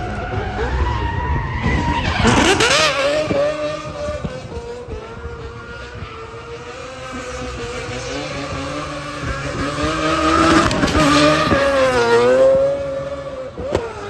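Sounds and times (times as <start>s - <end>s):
tyre squeal: 0.0s - 4.6s
car engine at high revs: 0.0s - 14.0s.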